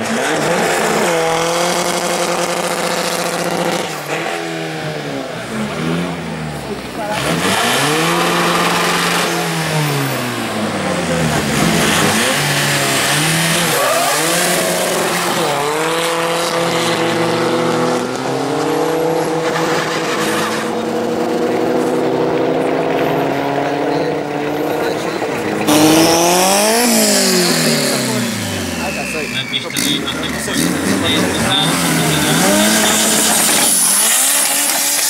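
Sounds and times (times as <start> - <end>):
car engine revving hard: 0.0 - 35.0.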